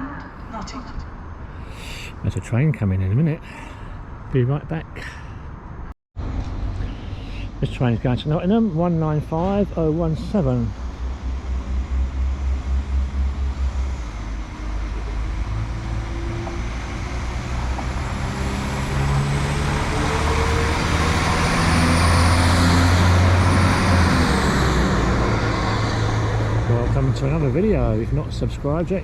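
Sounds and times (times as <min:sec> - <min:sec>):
diesel train engines revving: 0:00.0 - 0:04.8, 0:06.2 - 0:29.0
high whine: 0:06.2 - 0:28.9.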